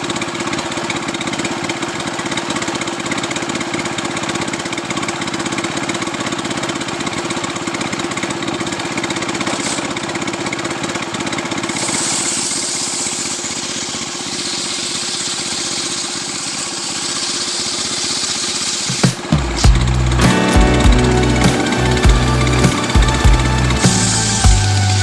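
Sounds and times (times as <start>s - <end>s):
chainsaw engine running: 0.0s - 25.0s
high hiss: 11.8s - 25.0s.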